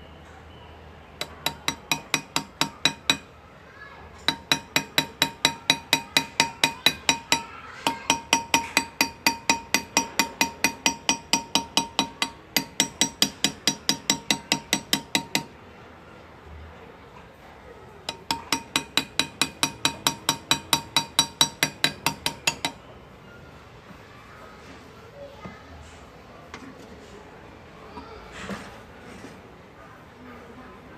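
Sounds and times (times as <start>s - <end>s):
hammer tapping metal graver: 1.2s - 3.4s, 4.2s - 15.6s, 18.1s - 22.9s.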